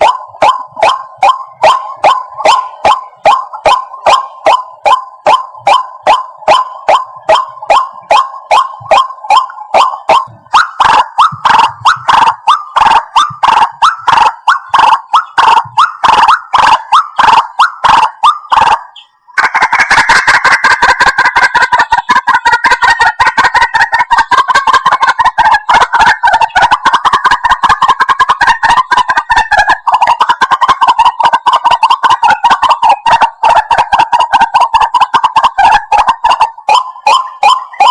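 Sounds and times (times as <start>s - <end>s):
waterhen calling loudly: 19.4s - 37.9s.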